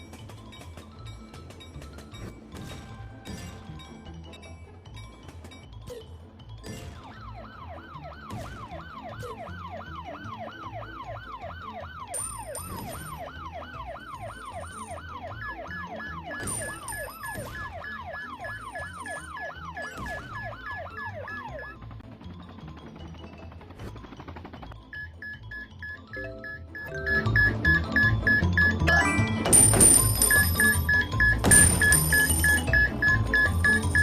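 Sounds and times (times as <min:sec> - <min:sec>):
toy car electronic siren: 0:06.9 - 0:22.0, 0:24.9 - 0:29.4, 0:30.0 - 0:34.0
pulsed beeping: 0:24.8 - 0:34.0.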